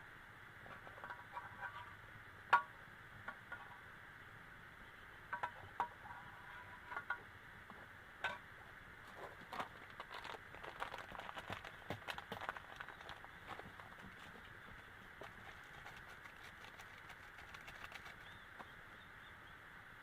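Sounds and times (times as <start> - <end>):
rain pattering: 9.5 - 14.3, 15.2 - 18.3
small sharp ticks: 15.2 - 18.4.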